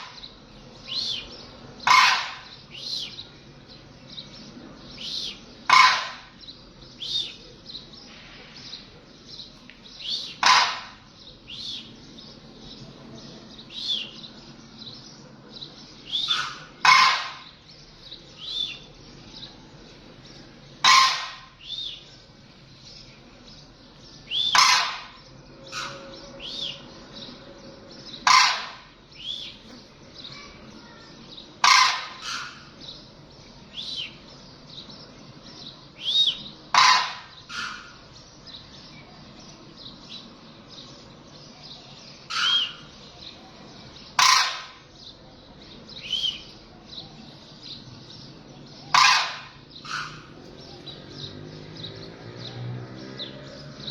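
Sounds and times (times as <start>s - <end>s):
harsh bird call: 0.0s - 3.3s, 4.9s - 9.0s, 9.9s - 14.5s, 15.9s - 17.7s, 18.3s - 19.5s, 20.5s - 22.3s, 24.2s - 40.4s, 41.0s - 51.3s
high bird chirps: 9.4s - 12.4s, 15.6s - 19.5s, 24.2s - 27.4s, 28.0s - 33.1s, 33.7s - 51.4s.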